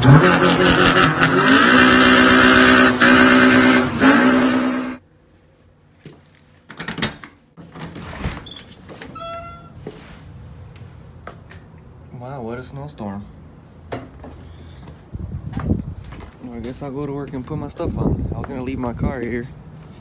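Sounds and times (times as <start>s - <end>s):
car engine revving: 0.0s - 5.0s.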